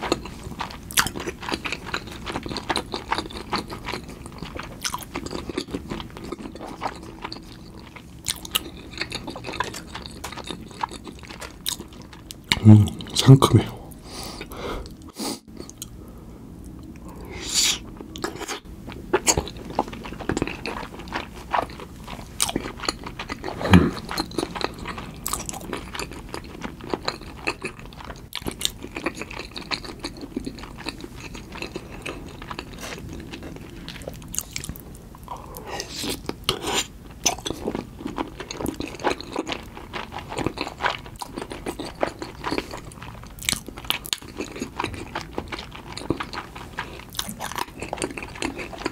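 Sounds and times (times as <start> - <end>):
wet chewing and crunching: 0.0 - 13.3, 17.8 - 48.9.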